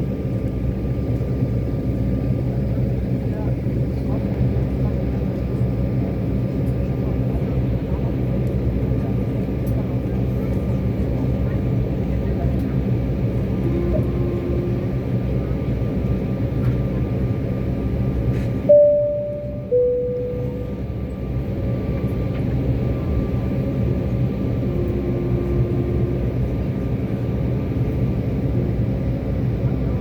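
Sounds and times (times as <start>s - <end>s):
airliner cabin hum: 0.0s - 30.0s
two-tone cabin chime: 18.7s - 20.9s.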